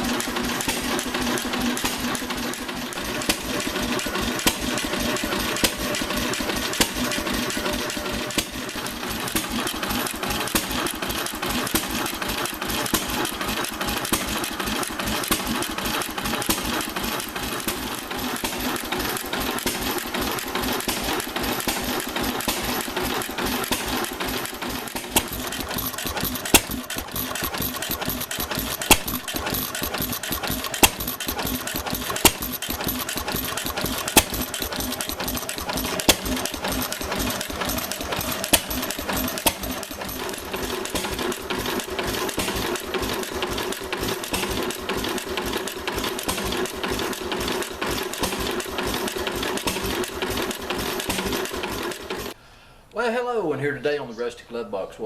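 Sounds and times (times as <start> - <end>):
stationary engine running: 0.0 - 52.4.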